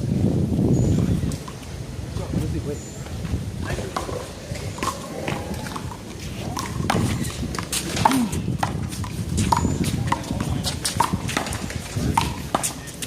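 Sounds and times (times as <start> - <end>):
ball slapping wall and ground: 3.6 - 13.0.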